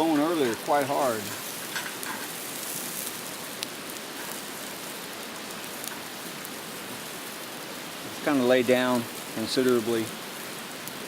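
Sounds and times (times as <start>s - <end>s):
faint fire pops: 0.0s - 11.0s
meat sizzling on a grill: 0.0s - 11.0s.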